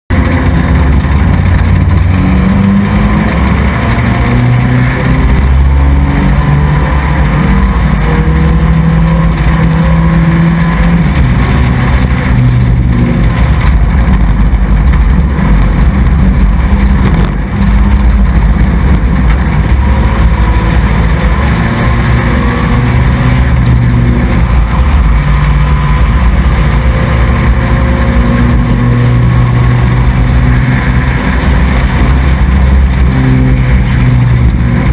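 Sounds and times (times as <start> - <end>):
racing truck engine revving: 0.1 - 34.9.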